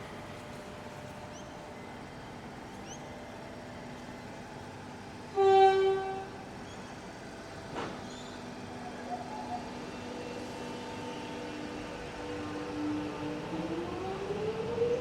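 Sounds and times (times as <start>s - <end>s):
train horn: 5.3s - 6.4s.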